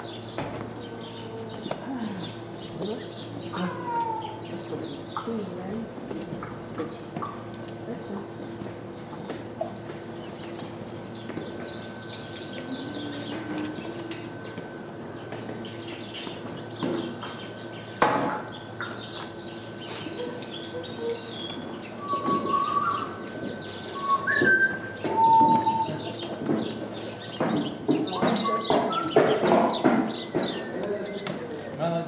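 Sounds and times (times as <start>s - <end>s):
small birds chirping and whistling: 10.2s - 31.3s.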